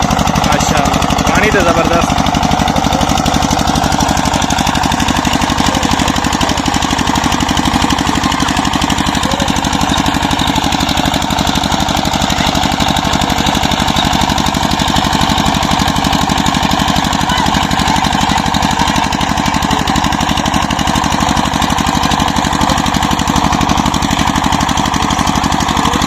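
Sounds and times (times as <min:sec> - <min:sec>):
diesel engine knocking: 0:00.0 - 0:26.0.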